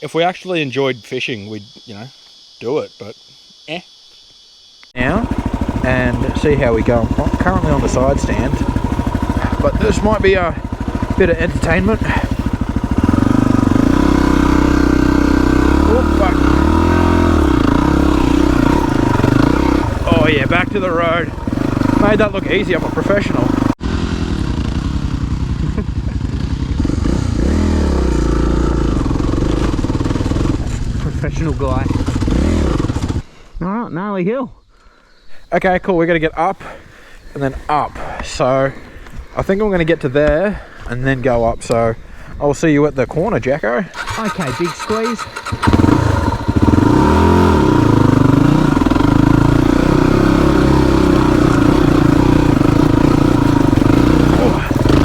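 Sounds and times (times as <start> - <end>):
motorcycle engine revving: 5.0 - 33.3, 43.9 - 55.0.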